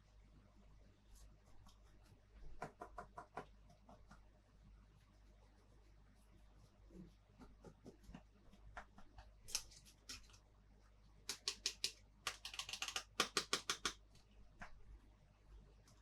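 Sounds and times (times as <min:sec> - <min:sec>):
plastic toy pieces clicking: 0:11.3 - 0:14.0.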